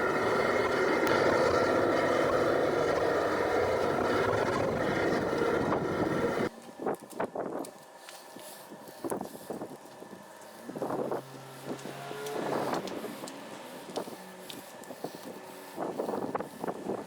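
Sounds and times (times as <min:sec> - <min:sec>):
power tool whining: 0:00.0 - 0:06.5, 0:10.5 - 0:17.0.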